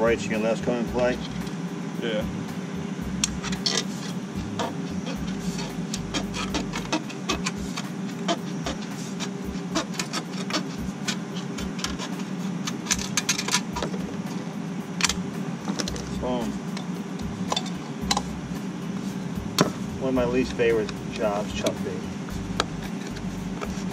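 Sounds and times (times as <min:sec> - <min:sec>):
steady low hum: 0:00.0 - 0:23.9
tin snips cutting sheet metal: 0:05.5 - 0:13.9.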